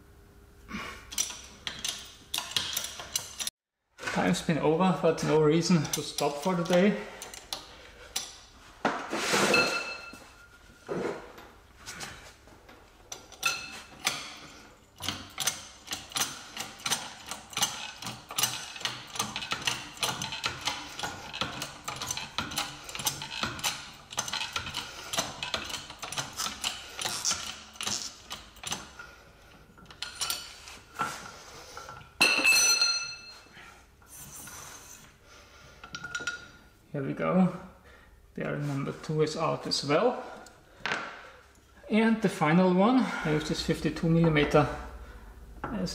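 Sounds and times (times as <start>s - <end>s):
ringing metallic clink: 32.2s - 33.4s.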